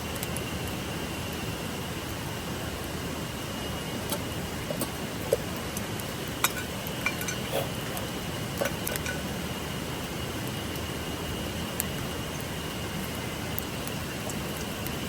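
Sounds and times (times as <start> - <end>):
cookware clinking: 6.4 - 7.5.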